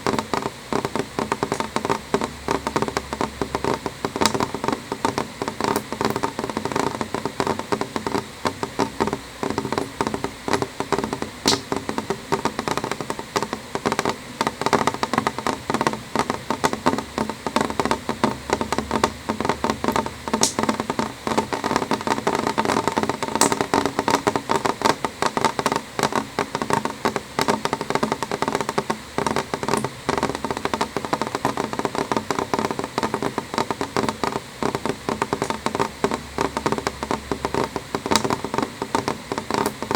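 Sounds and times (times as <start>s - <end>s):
rain pattering on window: 0.0s - 39.9s
sharp ticks of drops: 0.1s - 13.1s.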